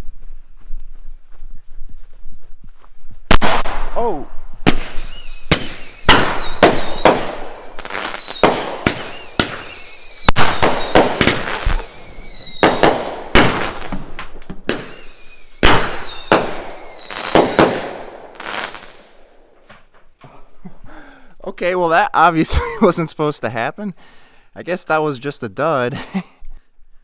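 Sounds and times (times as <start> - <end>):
firework cracks: 3.3 - 19.7
warbling firework whistles: 4.7 - 13.0, 14.8 - 17.8.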